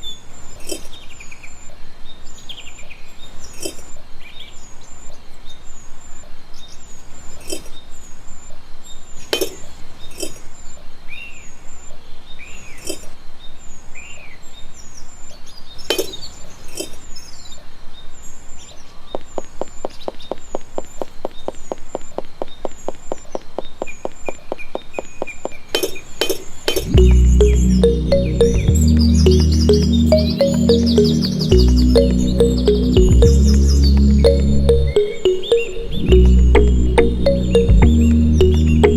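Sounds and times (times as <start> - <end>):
short high chirps: 27.0 - 38.9.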